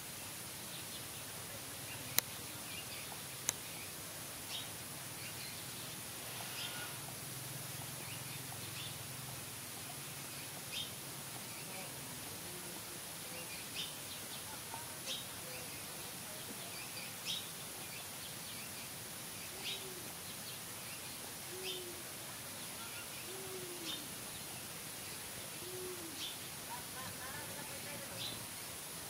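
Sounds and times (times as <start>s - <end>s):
low hooting coos: 6.3s - 7.1s, 22.9s - 24.2s, 25.6s - 26.3s.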